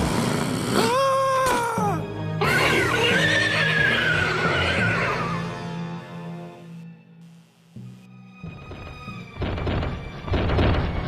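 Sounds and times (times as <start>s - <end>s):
background music: 0.0s - 11.0s
cartoon pony whinnying: 2.4s - 5.5s.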